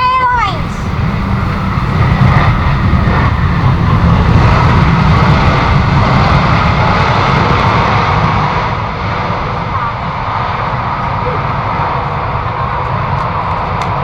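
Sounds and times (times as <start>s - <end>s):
jet engines roaring: 0.0s - 14.0s.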